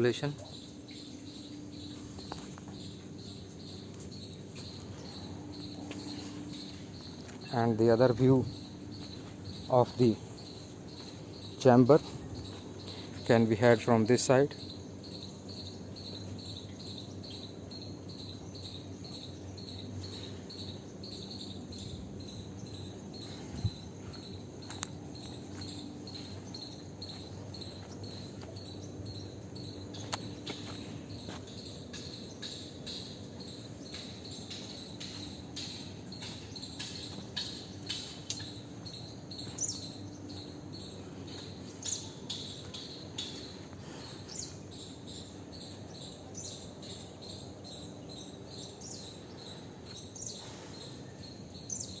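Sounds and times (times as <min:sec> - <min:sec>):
insects chirping: 0:00.0 - 0:52.0
low steady hum: 0:00.0 - 0:52.0.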